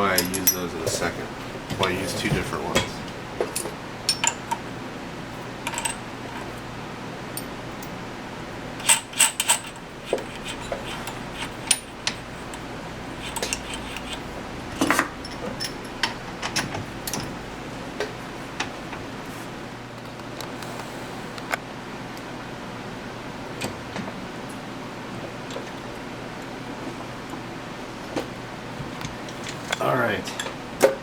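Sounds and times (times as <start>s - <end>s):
metal tools clicking and clinking: 0.0s - 4.6s, 5.6s - 6.5s, 8.8s - 12.6s, 13.2s - 17.4s.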